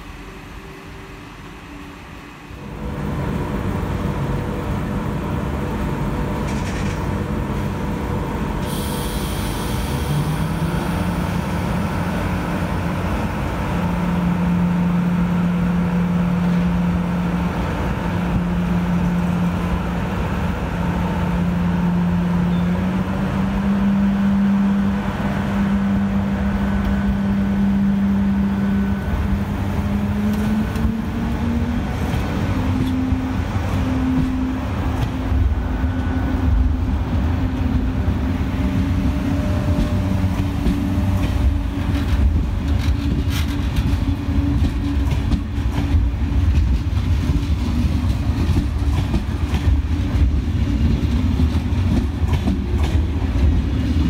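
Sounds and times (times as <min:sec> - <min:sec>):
train motor hum rising: 0:00.0 - 0:54.0
short hiss of air: 0:08.6 - 0:10.6.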